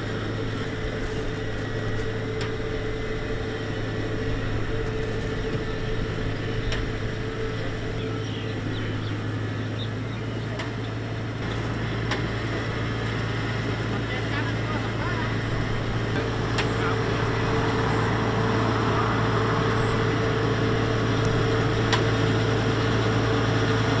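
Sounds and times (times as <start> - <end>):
combine harvester droning: 0.0 - 24.0
steady higher hum: 11.2 - 23.2.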